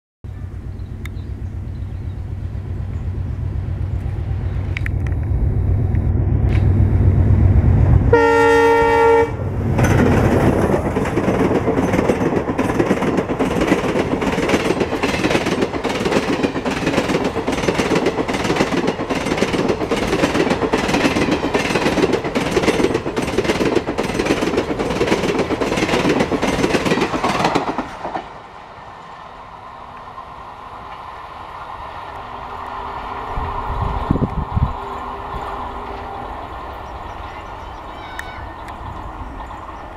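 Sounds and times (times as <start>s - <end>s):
diesel locomotive engine rumble: 0.3s - 39.9s
train horn blast: 8.1s - 9.5s
wheels clattering over rail joints: 9.6s - 28.4s.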